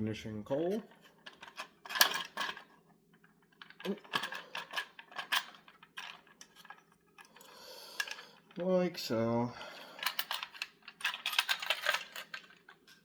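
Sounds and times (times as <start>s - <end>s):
plastic and metal parts clicking: 0.7s - 2.7s, 3.6s - 8.5s, 10.0s - 13.0s.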